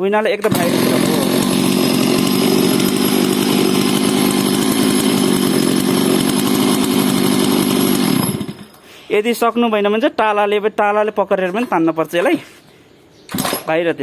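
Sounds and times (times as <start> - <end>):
chainsaw running: 0.4 - 8.9.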